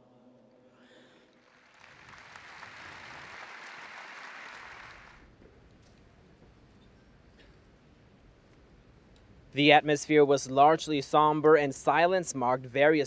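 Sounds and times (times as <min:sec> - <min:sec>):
large crowd applauding: 0:01.3 - 0:05.3.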